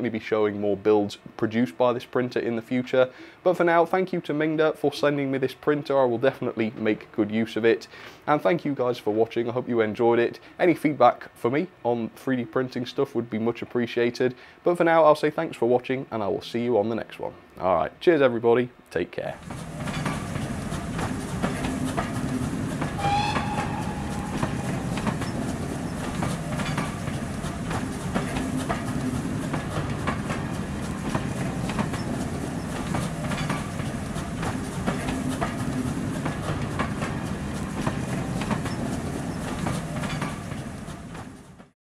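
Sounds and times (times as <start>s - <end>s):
railway carriages rumbling: 19.4s - 41.7s
wheels clicking over rail joints: 19.4s - 41.7s
whistle: 23.0s - 26.0s.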